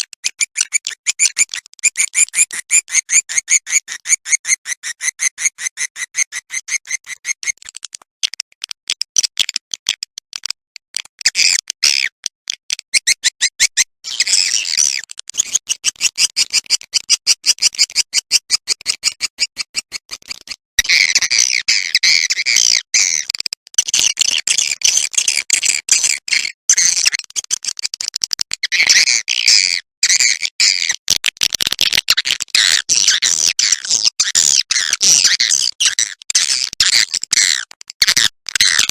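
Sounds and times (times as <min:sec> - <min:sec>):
swiftlet clicking chirps: 0:00.2 - 0:07.7.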